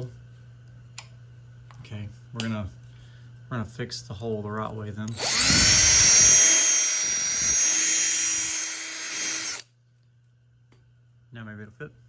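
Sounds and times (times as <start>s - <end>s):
power drill boring plastic: 5.1s - 9.6s.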